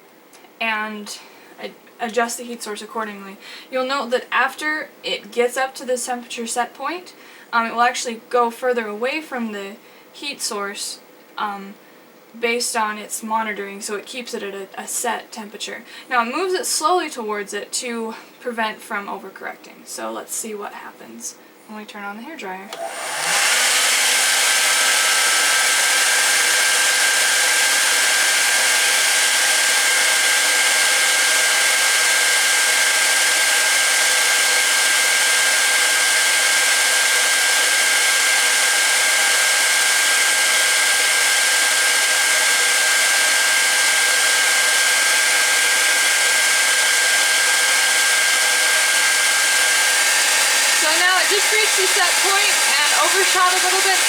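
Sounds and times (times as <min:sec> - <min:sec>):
hairdryer running: 0:22.7 - 0:54.0.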